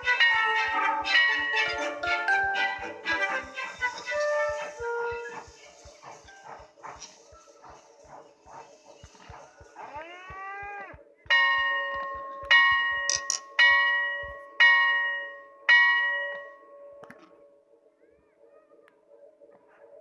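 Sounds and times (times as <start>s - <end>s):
bell ringing: 0.0s - 5.3s, 11.3s - 17.1s.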